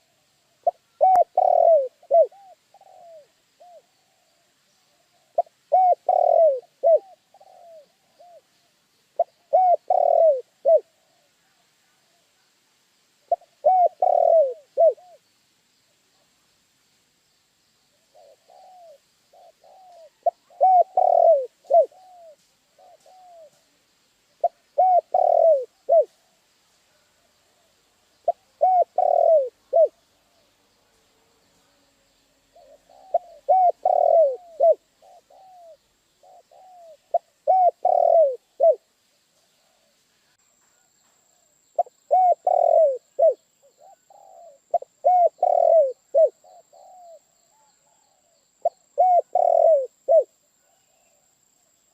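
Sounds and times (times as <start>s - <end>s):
dove cooing: 0.0s - 8.5s, 9.2s - 12.2s, 13.3s - 15.2s, 18.1s - 23.7s, 24.4s - 26.4s, 27.0s - 30.4s, 32.5s - 38.9s, 41.3s - 51.4s.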